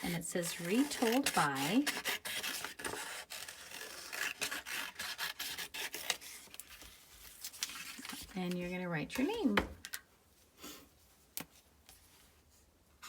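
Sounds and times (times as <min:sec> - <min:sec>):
scissors cutting paper: 0:00.0 - 0:06.8.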